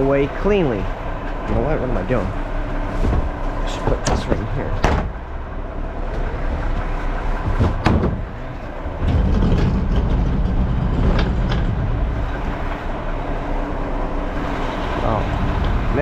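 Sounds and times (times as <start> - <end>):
garbage truck diesel engine: 0.0 - 16.0
knocks: 3.0 - 5.2, 6.1 - 8.4.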